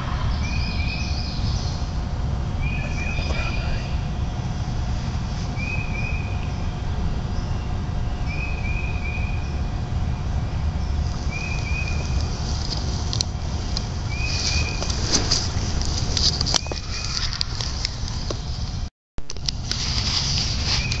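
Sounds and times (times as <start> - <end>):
steady low rumble: 0.0 - 21.0
songbird singing short phrase: 2.6 - 4.1.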